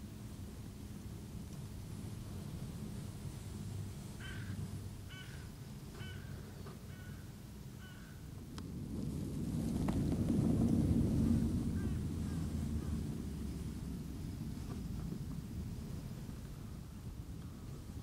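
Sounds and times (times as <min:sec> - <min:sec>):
wind rumble on microphone: 0:00.0 - 0:18.0
bird calling: 0:04.2 - 0:08.3.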